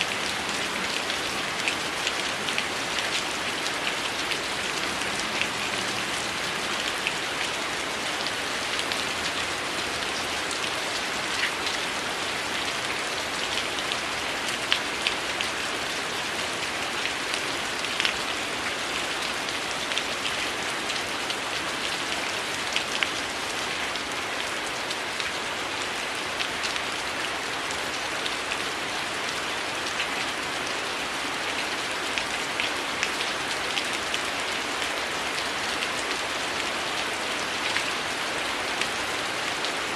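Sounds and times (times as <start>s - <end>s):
heavy rain hiss: 0.0s - 12.6s.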